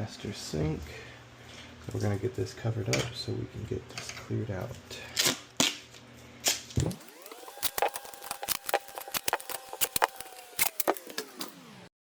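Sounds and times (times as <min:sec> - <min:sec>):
sharp clicks and crackles: 0:06.8 - 0:11.6
steady whine rising in pitch: 0:06.8 - 0:11.9.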